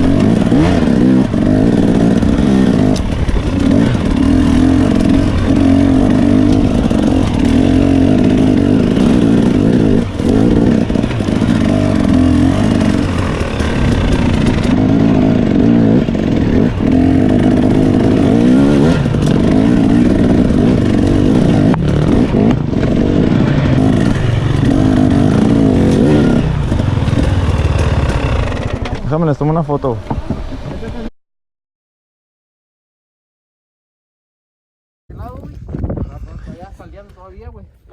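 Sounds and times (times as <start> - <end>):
dirt bike engine revving: 0.0 - 31.1.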